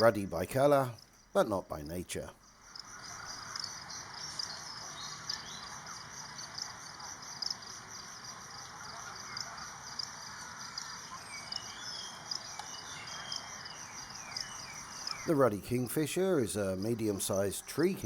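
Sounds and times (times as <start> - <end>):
insects trilling: 0.0 - 18.0
outdoor ambience: 0.0 - 18.0.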